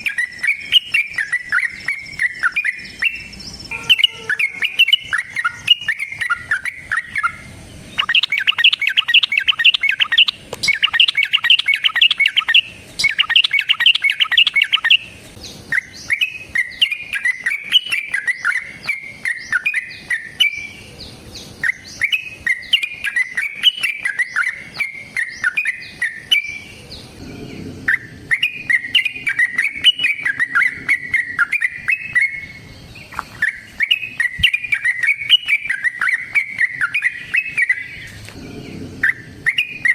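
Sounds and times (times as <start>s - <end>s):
bird singing chattering runs: 0.0s - 20.7s, 27.6s - 38.2s
bubbly bird warbling: 8.0s - 15.0s.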